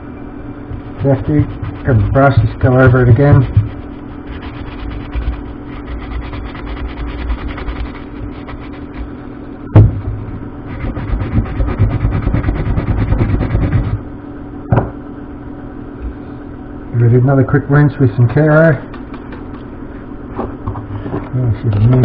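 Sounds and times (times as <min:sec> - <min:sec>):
steady low hum: 0:00.0 - 0:22.0
brush scrubbing chain: 0:00.9 - 0:09.1.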